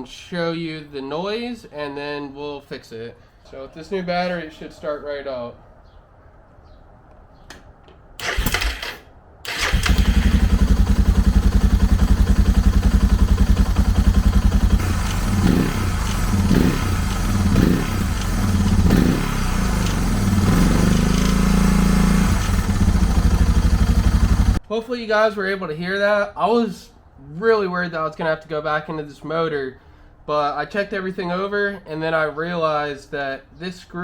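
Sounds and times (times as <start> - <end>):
motorcycle starter cranking: 8.2 - 24.6
motorcycle engine idling: 9.5 - 24.6.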